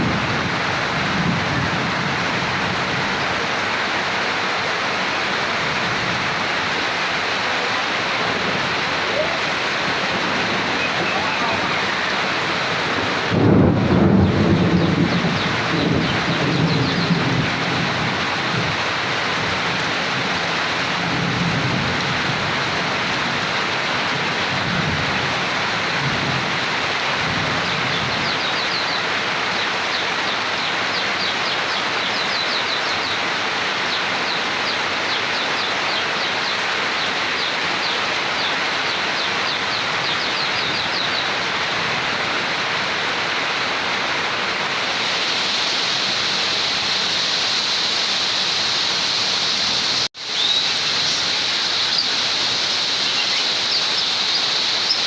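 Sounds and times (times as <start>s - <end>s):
thunder rumbling: 0.0s - 3.9s, 5.3s - 28.4s
heavy rain: 0.0s - 55.0s.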